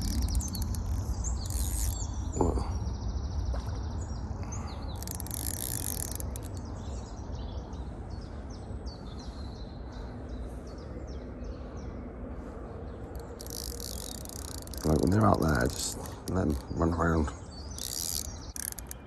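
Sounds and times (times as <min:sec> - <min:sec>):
steady low rumble: 0:00.0 - 0:05.0, 0:06.5 - 0:13.4
songbirds chirping: 0:00.0 - 0:19.0.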